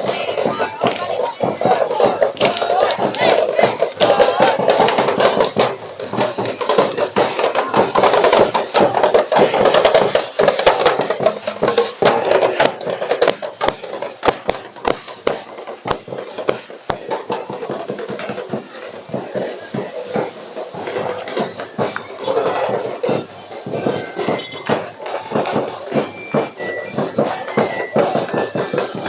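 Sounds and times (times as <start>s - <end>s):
crowd hubbub: 0.0s - 29.0s
drums and percussion beating: 0.0s - 29.0s.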